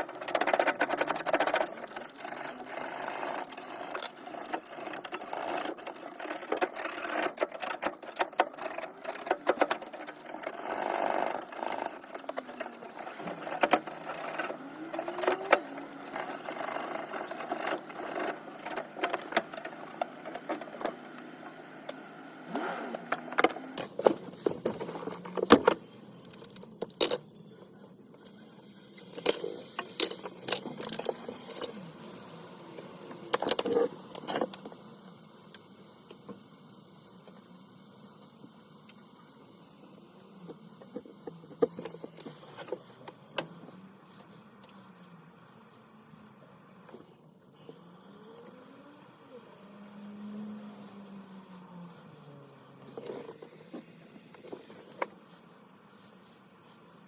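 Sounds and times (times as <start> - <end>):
faint steady hum: 0.0 - 57.0
tools clicking and rattling: 23.4 - 27.3.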